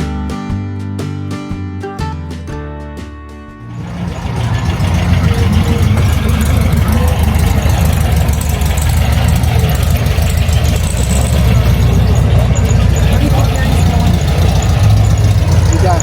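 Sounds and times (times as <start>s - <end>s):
music: 0.0s - 8.4s
car engine idling: 3.7s - 16.0s.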